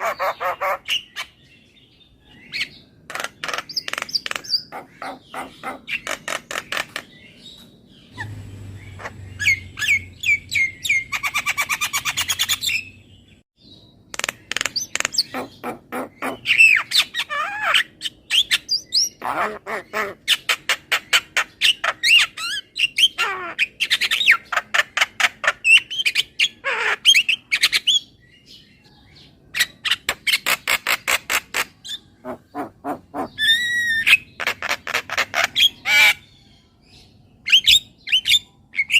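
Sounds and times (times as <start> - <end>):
myna bird calling: 0.0 - 13.4, 14.0 - 38.9.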